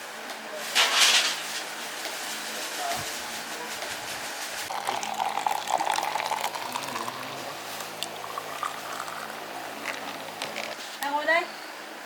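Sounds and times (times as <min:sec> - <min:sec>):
liquid pouring into container: 0:04.7 - 0:10.8.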